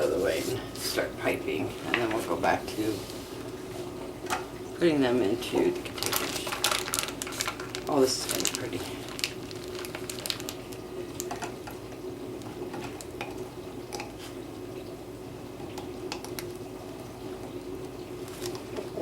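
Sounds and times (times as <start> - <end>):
soap squishing: 5.7 - 11.7, 17.4 - 19.0.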